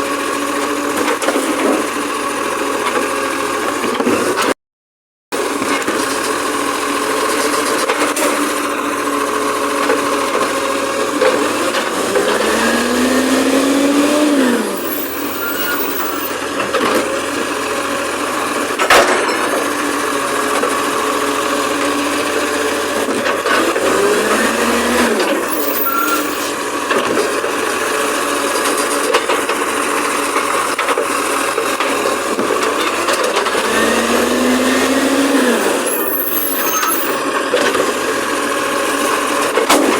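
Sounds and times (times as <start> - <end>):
garbage truck engine revving: 11.4 - 16.3, 22.8 - 26.5, 32.6 - 37.2.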